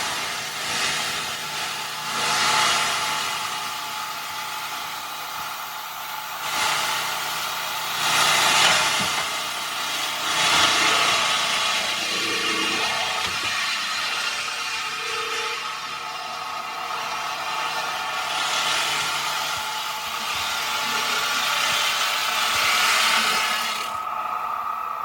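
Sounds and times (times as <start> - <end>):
heavy machinery engine revving: 6.3 - 25.0.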